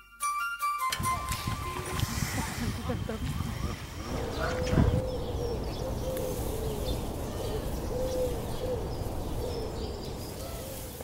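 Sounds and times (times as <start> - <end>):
low rumble: 1.1 - 10.4
bird cooing: 2.9 - 11.0.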